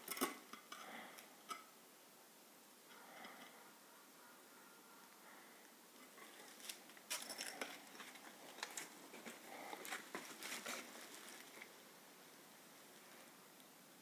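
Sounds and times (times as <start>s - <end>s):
debris crunching and rustling: 6.1s - 11.7s.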